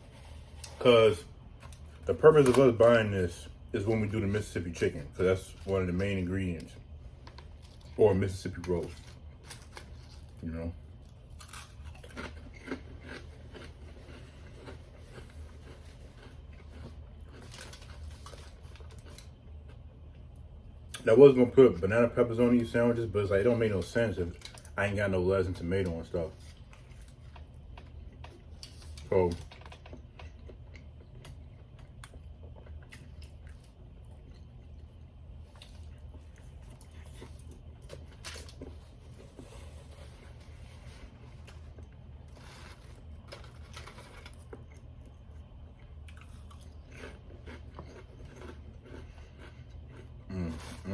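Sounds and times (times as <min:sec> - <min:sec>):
steady low hum: 0:00.0 - 0:50.9
person chewing food: 0:08.9 - 0:21.0, 0:26.4 - 0:50.9.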